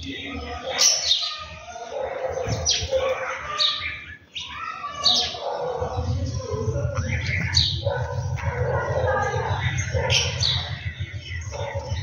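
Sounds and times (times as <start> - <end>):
birds chirping: 0.0 - 12.0
low rumble: 5.7 - 12.0.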